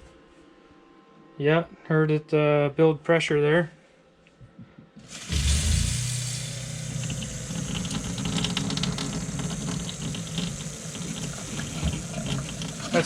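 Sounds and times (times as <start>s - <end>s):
faucet hissing and sputtering: 5.0s - 13.0s
water pump humming: 5.0s - 13.0s.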